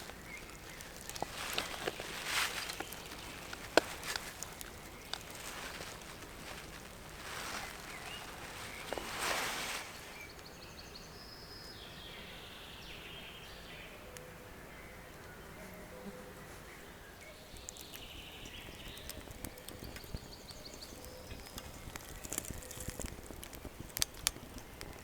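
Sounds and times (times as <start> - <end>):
rustling: 0.0 - 10.7, 17.6 - 25.0.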